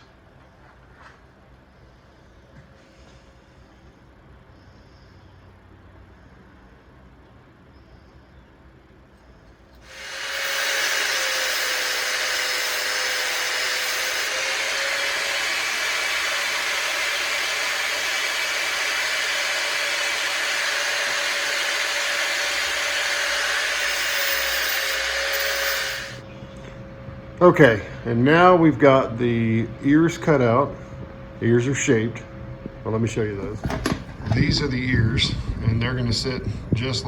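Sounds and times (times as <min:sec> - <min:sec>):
power tool cutting sheet metal: 0:09.8 - 0:26.2.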